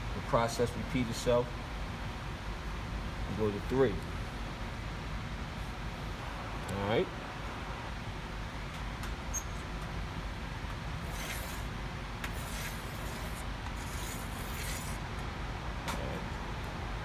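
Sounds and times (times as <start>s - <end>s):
low background hum: 0.0s - 17.0s
divider points scratching metal: 11.0s - 15.2s.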